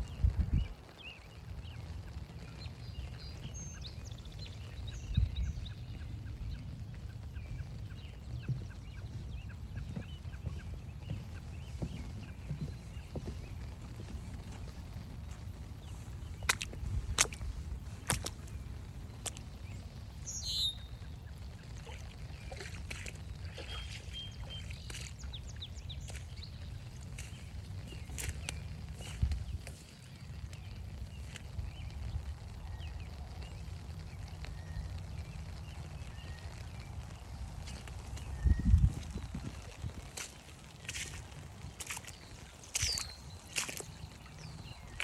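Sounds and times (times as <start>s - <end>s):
birds calling: 0.0s - 45.0s
songbirds chirping: 0.0s - 45.0s
steady low rumble: 0.0s - 45.0s
footstep-like ticks: 5.4s - 19.6s.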